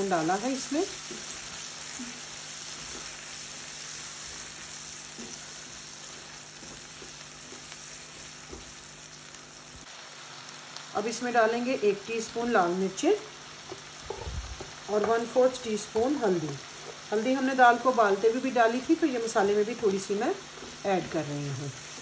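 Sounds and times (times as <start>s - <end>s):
food sizzling in hot oil: 0.0s - 22.0s
spatula stirring and scraping: 0.4s - 8.8s, 19.7s - 22.0s.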